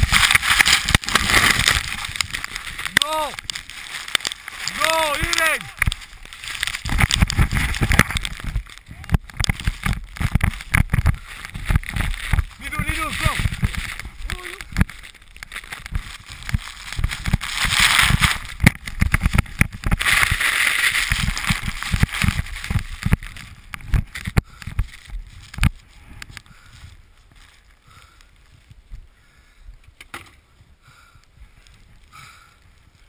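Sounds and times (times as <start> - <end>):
snowboard rushing through powder: 0.0 - 8.7, 15.9 - 23.4
wind buffeting microphone: 4.7 - 33.0.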